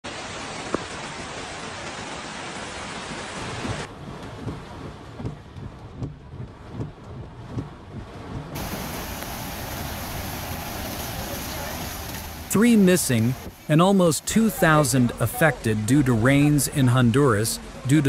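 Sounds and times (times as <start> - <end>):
heavy rain: 0.0 - 18.0
rushing floodwater: 0.0 - 18.0
low gusty rumbles: 3.8 - 15.6.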